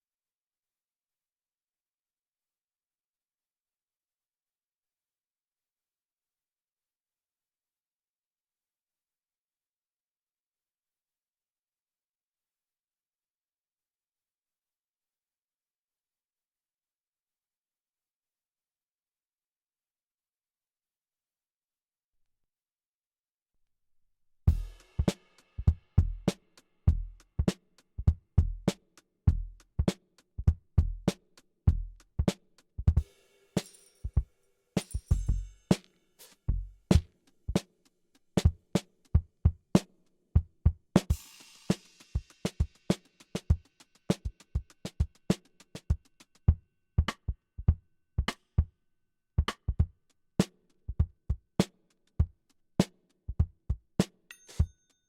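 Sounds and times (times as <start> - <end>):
kick drum: 24.5 - 26.3, 28.0 - 29.6, 30.4 - 31.1, 36.5 - 37.1, 39.2 - 39.6, 49.4 - 49.9, 50.9 - 51.4, 53.4 - 53.8
snare and hi-hat hits: 24.5 - 29.0, 32.2 - 34.2, 34.8 - 39.2, 41.0 - 46.4, 51.6 - 51.9
hip hop drum beat: 24.5 - 37.7, 38.4 - 48.4, 49.4 - 50.0.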